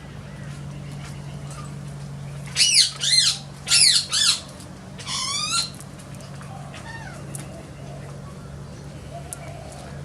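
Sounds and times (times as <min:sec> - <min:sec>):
bird squawking: 0:02.6 - 0:05.8.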